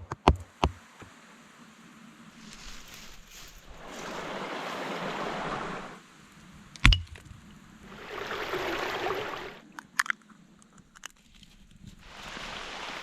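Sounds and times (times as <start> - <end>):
rushing water-like noise: 0.8 - 6.8, 7.7 - 9.6, 12.0 - 13.0.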